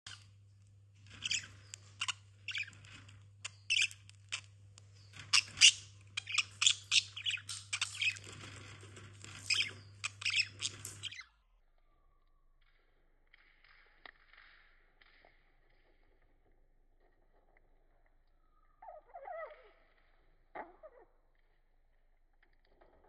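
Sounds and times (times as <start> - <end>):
budgerigars chirping and chattering: 1.1 - 11.2.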